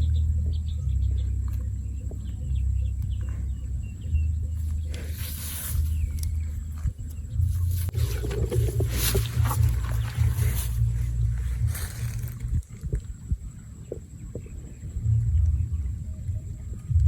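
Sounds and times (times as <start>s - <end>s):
high bird chirps: 0.0s - 12.6s
low rumble: 0.0s - 17.0s
rustling hiss: 4.6s - 13.9s.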